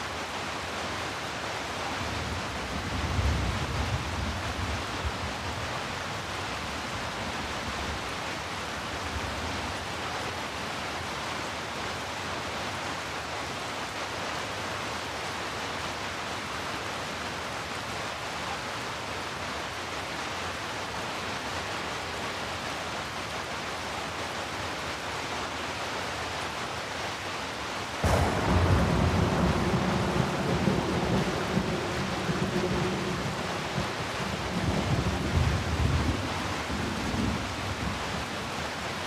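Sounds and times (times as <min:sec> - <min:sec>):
heavy rain falling: 0:00.0 - 0:39.0
deep thunder rumble: 0:28.0 - 0:38.2.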